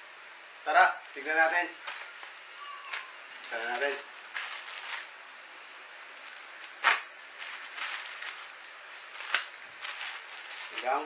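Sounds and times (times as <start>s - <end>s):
packaging rustling and scraping: 1.8s - 5.2s, 6.1s - 11.0s.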